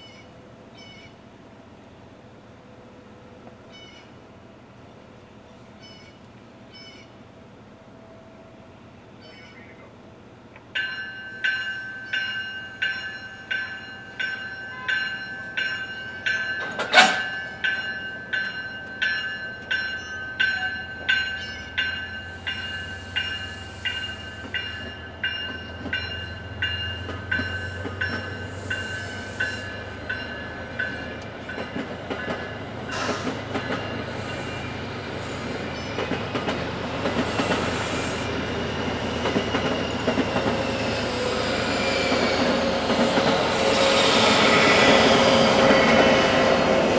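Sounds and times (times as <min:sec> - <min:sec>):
train rumble: 0:00.0 - 0:46.9
train wheels on rails: 0:10.3 - 0:46.9
crossing bell ringing: 0:10.7 - 0:34.9.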